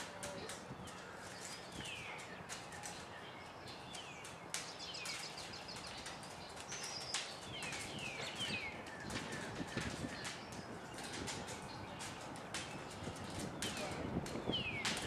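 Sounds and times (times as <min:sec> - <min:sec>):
birds singing: 0:00.0 - 0:15.0.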